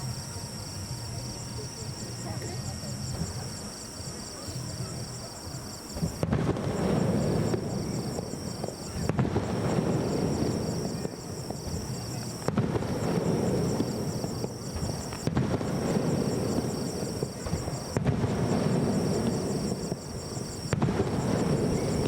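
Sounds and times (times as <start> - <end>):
insects chirping: 0.0 - 22.0
firework shells bursting: 5.6 - 22.0.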